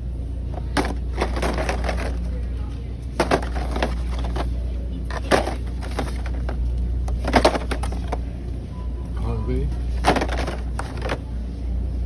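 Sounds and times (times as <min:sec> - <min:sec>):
plastic toys knocking together: 0:00.5 - 0:02.3, 0:03.2 - 0:04.5, 0:05.1 - 0:08.2, 0:10.0 - 0:11.2.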